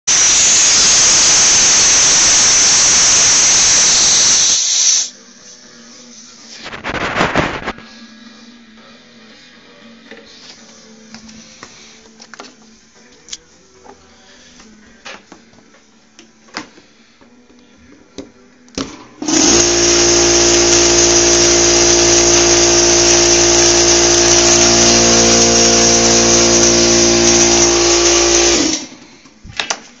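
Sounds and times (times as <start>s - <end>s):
compressor motor humming: 0.1s - 5.1s, 18.8s - 29.0s
compressed air hissing: 0.1s - 7.6s.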